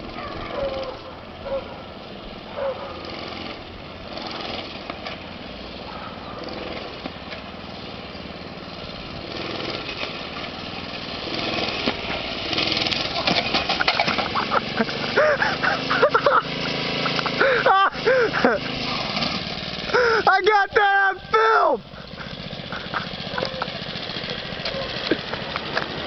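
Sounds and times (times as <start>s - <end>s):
small motorbike engine running: 0.0s - 26.0s
people yelling: 20.2s - 21.9s.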